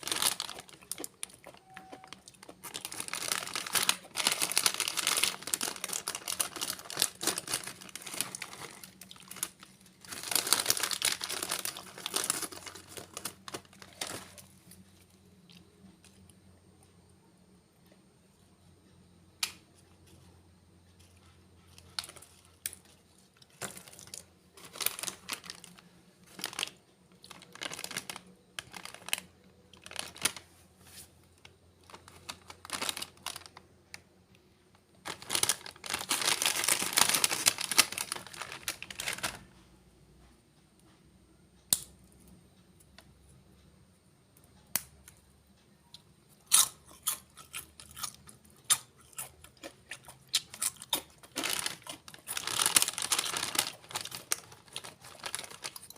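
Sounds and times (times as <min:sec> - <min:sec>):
rustling and crinkling: 0:00.0 - 0:16.2, 0:20.9 - 0:34.0, 0:34.7 - 0:39.6, 0:50.6 - 0:55.9
crunchy snacks being chewed: 0:00.0 - 0:16.4, 0:21.0 - 0:30.5, 0:35.1 - 0:39.5, 0:45.9 - 0:55.9.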